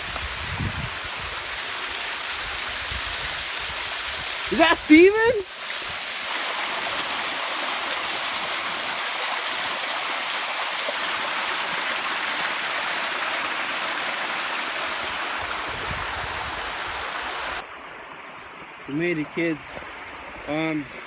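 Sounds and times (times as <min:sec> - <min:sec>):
strong wind rushing: 0:15.5 - 0:17.0.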